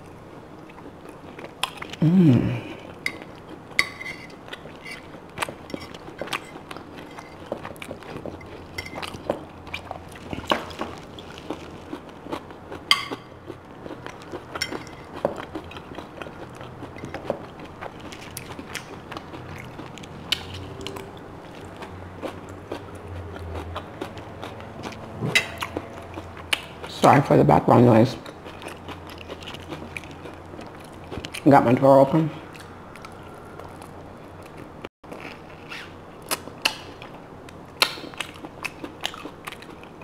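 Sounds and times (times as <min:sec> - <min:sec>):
chewing and mouth sounds: 0:00.0 - 0:27.1, 0:28.2 - 0:31.8, 0:32.4 - 0:40.0
faint low hum: 0:00.0 - 0:40.0
fork on a plate: 0:03.8 - 0:07.6, 0:24.8 - 0:26.7.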